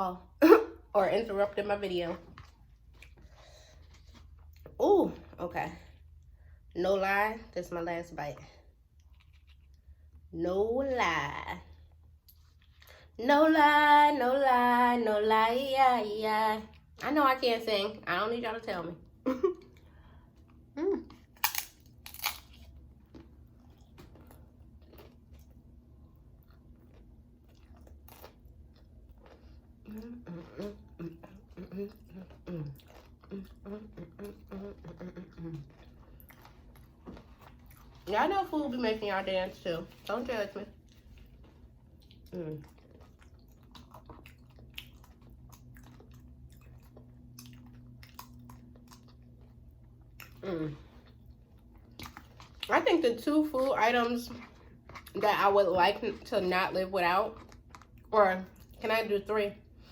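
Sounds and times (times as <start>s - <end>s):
soft chewing: 1.8s - 6.8s, 8.4s - 10.3s, 11.6s - 13.2s, 19.0s - 58.9s
crunchy food crunching: 20.5s - 38.1s, 40.7s - 52.7s, 57.2s - 58.8s.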